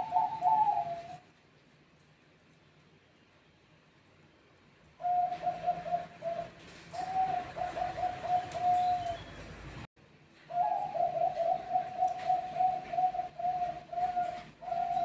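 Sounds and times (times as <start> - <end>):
dove cooing: 0.0 - 1.3, 5.0 - 9.4, 10.5 - 15.0.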